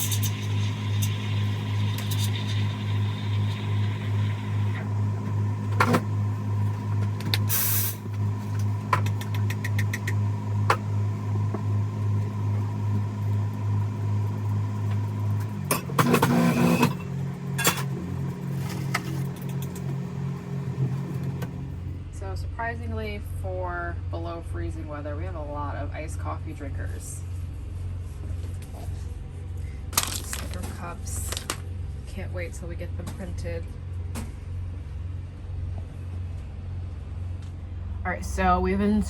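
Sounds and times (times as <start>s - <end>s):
low pulsing machine hum: 0.0s - 39.0s.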